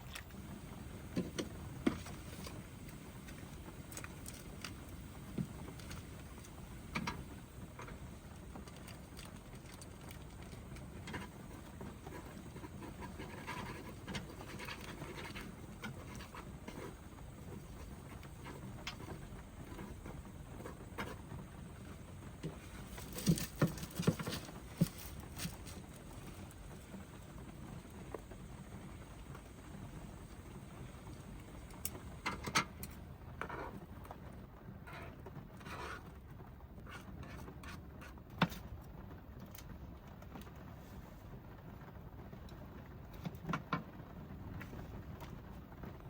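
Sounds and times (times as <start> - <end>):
rain pattering on a vehicle roof: 0.0 - 46.0.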